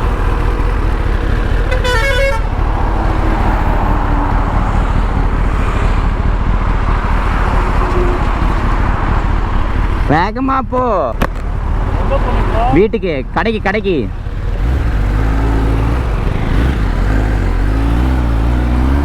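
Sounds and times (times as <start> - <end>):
vehicle engine rumble: 0.0 - 19.0
wind: 0.0 - 19.0
vehicle horn toot: 1.5 - 2.7.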